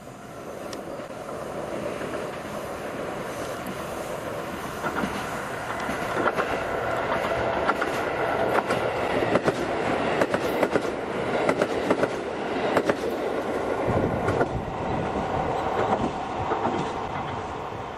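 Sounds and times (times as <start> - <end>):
train wheels rumbling on rails: 0.0 - 17.9
wheels clicking over rail joints: 4.6 - 17.9.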